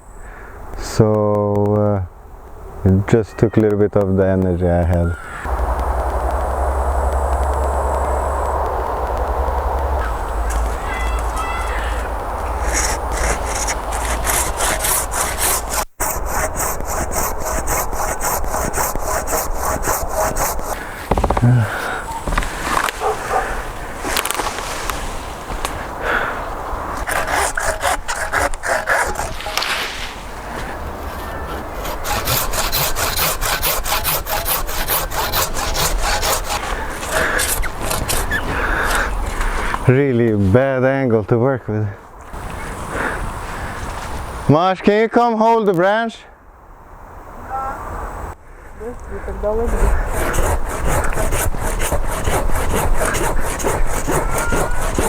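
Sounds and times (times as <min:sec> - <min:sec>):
hand saw cutting branch: 0:11.9 - 0:25.0, 0:27.0 - 0:30.4, 0:31.0 - 0:39.5, 0:49.6 - 0:55.0.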